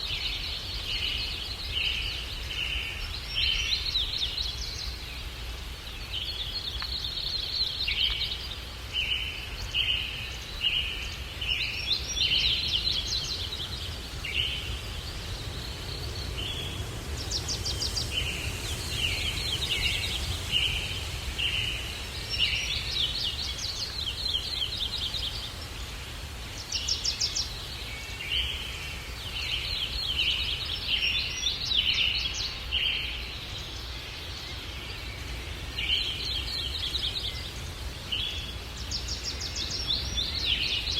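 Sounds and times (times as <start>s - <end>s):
low rumble of breeze: 0.0s - 40.9s
small birds chirping: 0.0s - 40.9s.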